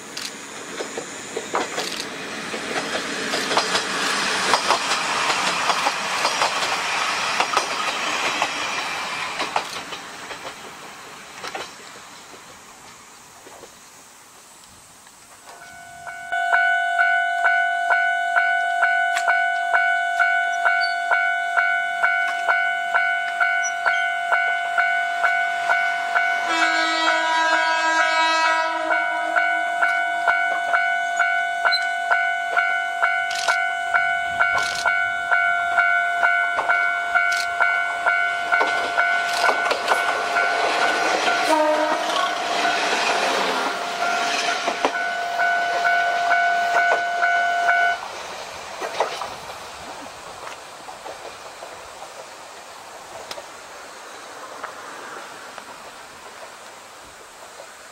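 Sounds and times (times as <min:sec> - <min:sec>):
wheels clicking over rail joints: 0:00.0 - 0:13.8, 0:29.4 - 0:57.9
train engine and wheels passing: 0:00.0 - 0:57.9
train horn: 0:15.5 - 0:42.8
level-crossing alarm ringing: 0:15.5 - 0:48.0.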